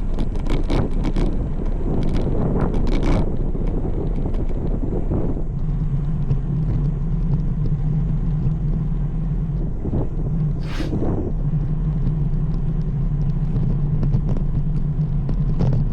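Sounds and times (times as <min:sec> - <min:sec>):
wind noise: 0:00.0 - 0:15.9
low hum: 0:05.5 - 0:15.7
road noise: 0:05.7 - 0:14.0.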